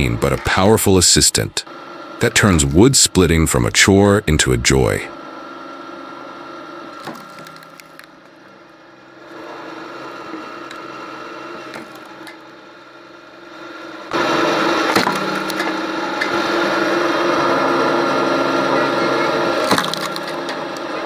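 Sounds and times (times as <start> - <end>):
wood splitter humming: 0.0 - 21.0
wood cracking and splitting: 7.0 - 8.2, 14.9 - 15.9, 19.7 - 20.4.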